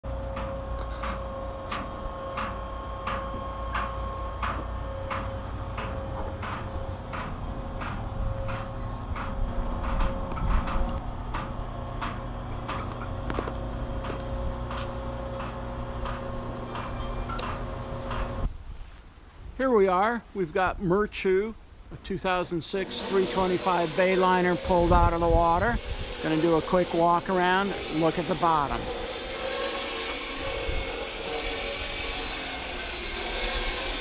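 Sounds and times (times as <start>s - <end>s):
machine humming: 0.0s - 18.5s.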